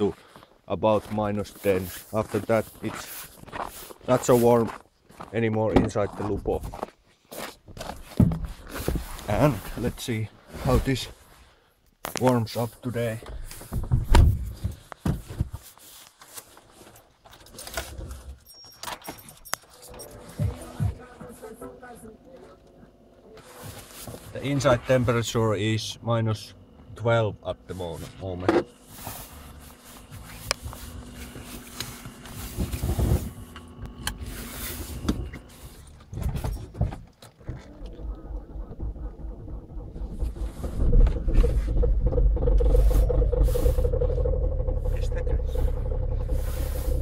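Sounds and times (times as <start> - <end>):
clicks and knocks inside car: 13.2 - 15.7, 35.0 - 43.4
car keys jangling: 18.3 - 20.2
faint low hum: 19.8 - 47.0.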